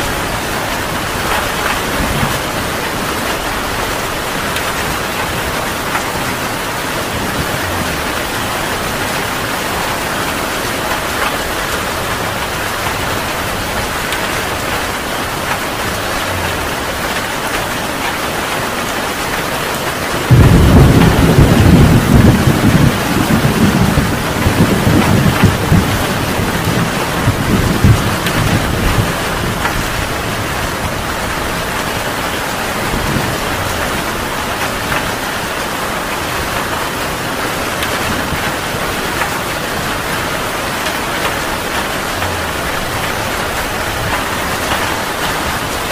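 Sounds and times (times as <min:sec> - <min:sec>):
heavy rain falling: 0:00.0 - 0:45.9
thunder clap rolling: 0:20.1 - 0:37.0, 0:37.7 - 0:45.9.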